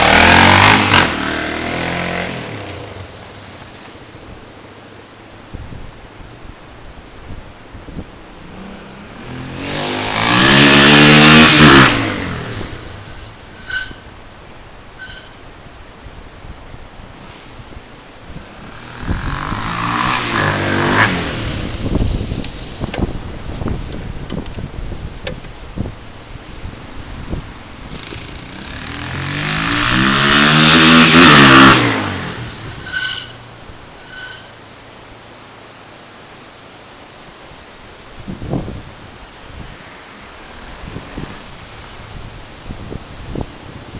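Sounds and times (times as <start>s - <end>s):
motorcycle engine revving: 0.0s - 4.4s, 8.4s - 14.1s, 18.3s - 25.0s, 26.6s - 33.4s
short high-pitched tone: 15.0s - 15.4s.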